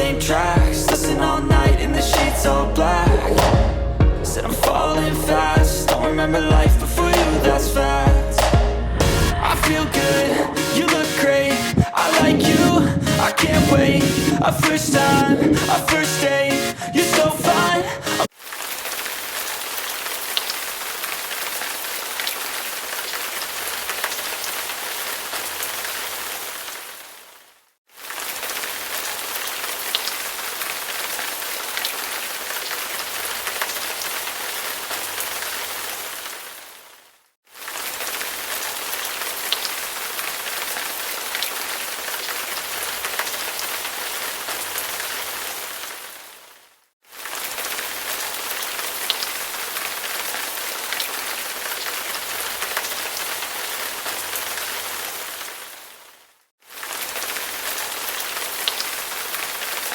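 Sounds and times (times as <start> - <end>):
steady rain falling: 9.0 - 17.3, 18.2 - 59.9.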